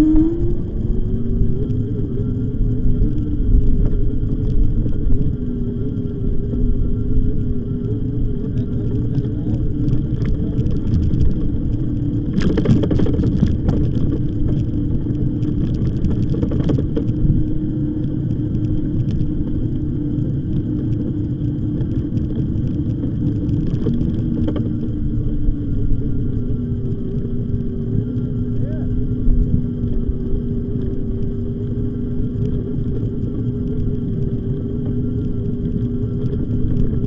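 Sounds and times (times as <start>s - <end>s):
steady hum: 0.0s - 37.0s
wind on microphone: 0.0s - 37.0s
bike rattling over bumps: 8.4s - 28.2s
tyre rumble: 8.7s - 17.6s.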